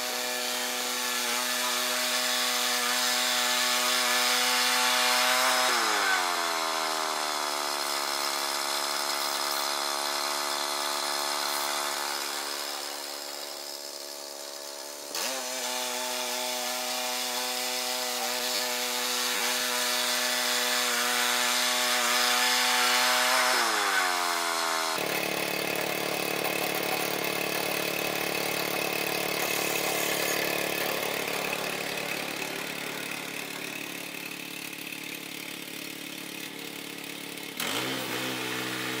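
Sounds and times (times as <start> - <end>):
sawmill engine under load: 0.0 - 39.0
rough engine running: 25.0 - 39.0.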